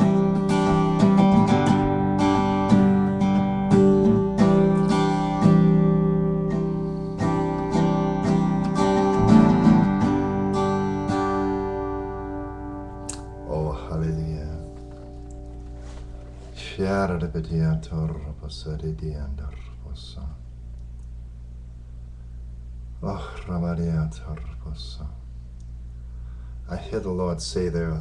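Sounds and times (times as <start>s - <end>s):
acoustic guitar strumming: 0.0s - 16.9s.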